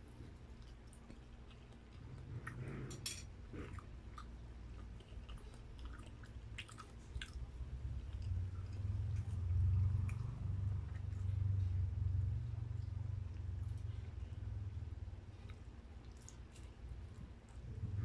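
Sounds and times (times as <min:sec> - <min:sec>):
chewing: 0:00.0 - 0:18.0
low rumble: 0:16.9 - 0:18.0.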